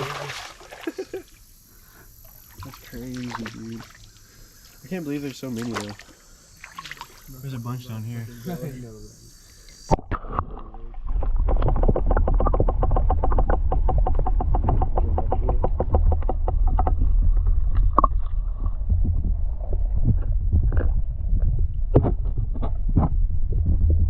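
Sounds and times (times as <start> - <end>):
muffled underwater rumble: 7.2 - 24.0
rapid crackling clicks: 11.2 - 17.0.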